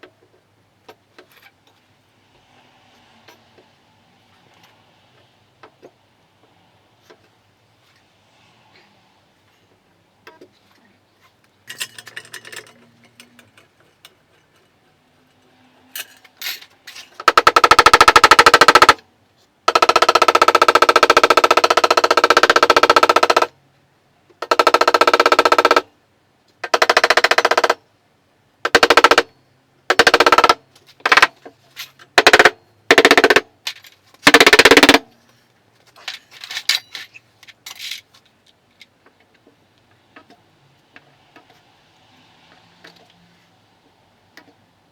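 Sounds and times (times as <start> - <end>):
power tool rattling whine: 17.2 - 19.0, 32.2 - 33.4, 34.2 - 35.0.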